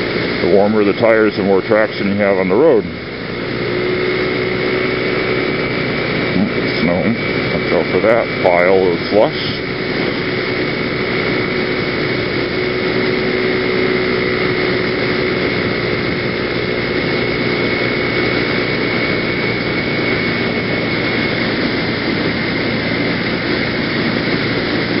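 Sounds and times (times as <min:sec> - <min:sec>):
scooter engine whining: 0:00.0 - 0:25.0.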